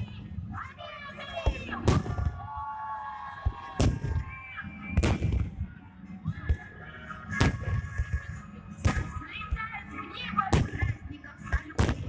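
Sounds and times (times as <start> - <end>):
music: 0.0 - 12.0
fireworks bangs: 1.4 - 2.5, 3.5 - 5.7, 7.3 - 9.6, 10.5 - 12.0
fireworks pops: 5.0 - 5.6.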